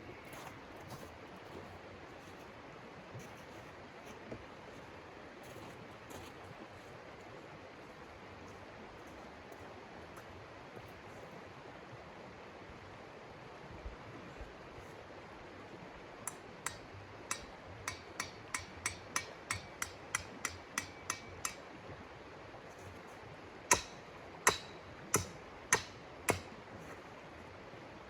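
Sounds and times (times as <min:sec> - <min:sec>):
hammering knocks: 0:16.3 - 0:21.6, 0:23.7 - 0:26.5.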